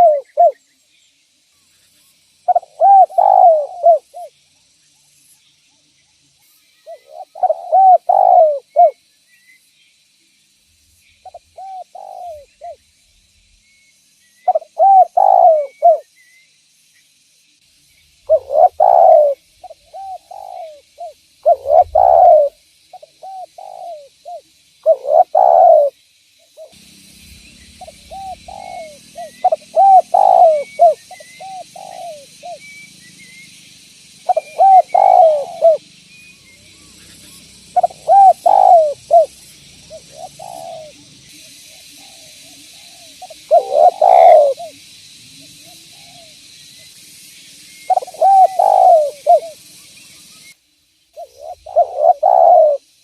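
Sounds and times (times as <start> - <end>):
dove cooing: 0.0 - 0.6, 2.5 - 4.4, 6.9 - 9.0, 11.2 - 12.8, 14.5 - 16.0, 18.3 - 26.0, 27.7 - 32.7, 34.2 - 35.9, 37.7 - 41.1, 41.9 - 44.8, 47.9 - 49.6, 51.2 - 52.9
steady hiss: 0.0 - 53.0.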